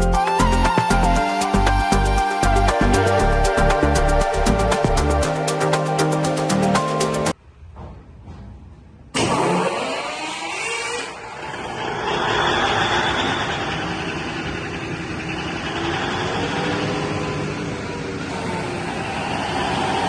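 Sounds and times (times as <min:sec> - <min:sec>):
diesel engine running: 0:11.2 - 0:20.0.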